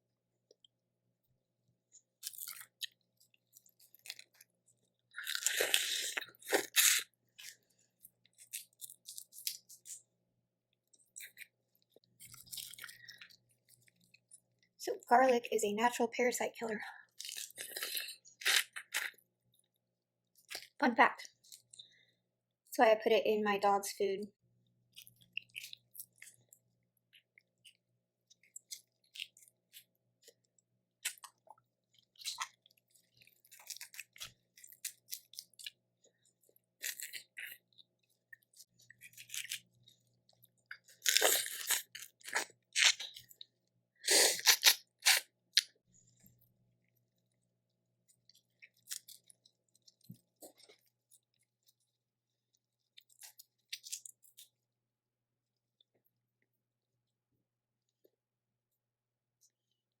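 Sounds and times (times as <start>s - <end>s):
person chewing and crunching: 2.0s - 10.2s, 10.8s - 14.7s, 16.9s - 21.9s, 24.9s - 52.0s, 52.6s - 54.6s.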